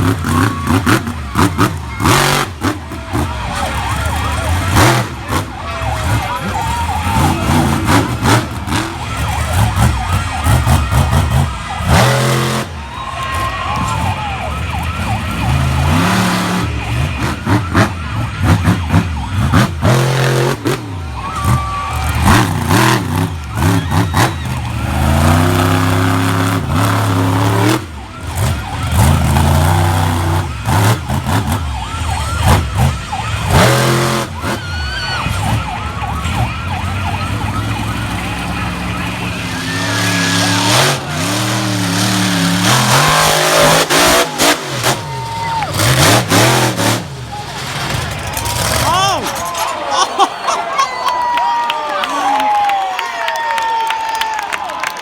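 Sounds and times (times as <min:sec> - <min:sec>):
loud bursts of engine noise: 0:00.0 - 0:49.8
truck engine revving: 0:00.0 - 0:50.6.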